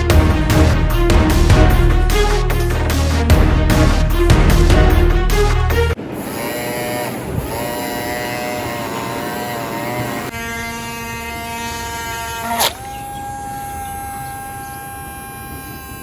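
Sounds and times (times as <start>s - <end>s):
small electric motor whining: 6.1s - 16.0s.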